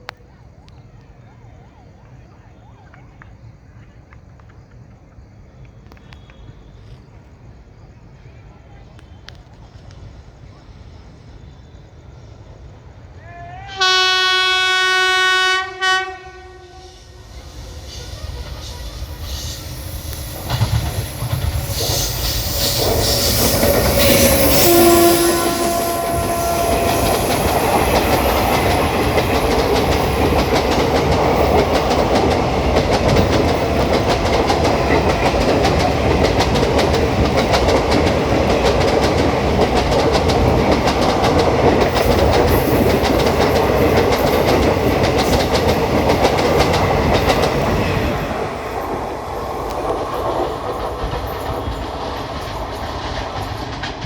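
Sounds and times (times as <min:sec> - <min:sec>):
locomotive horn: 0:13.2 - 0:18.9, 0:23.4 - 0:28.3
train wheels clattering over rail joints: 0:18.3 - 0:54.0.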